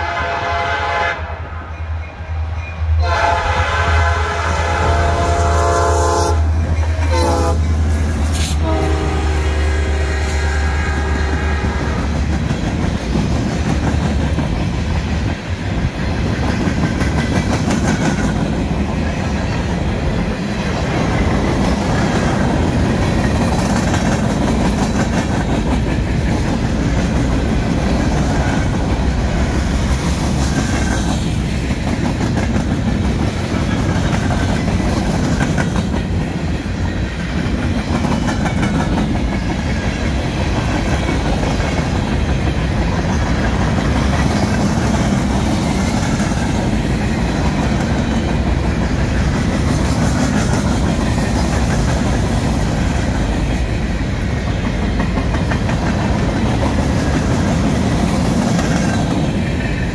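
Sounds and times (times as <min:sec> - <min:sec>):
train air horn blasts: 0:00.0 - 0:01.7, 0:03.0 - 0:12.2
train wheels clacking on rails: 0:04.7 - 0:59.9.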